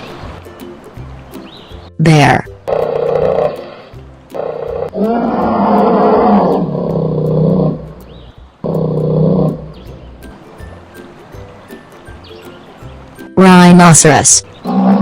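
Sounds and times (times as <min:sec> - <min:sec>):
bear roaring: 0:02.7 - 0:09.9, 0:14.6 - 0:15.0.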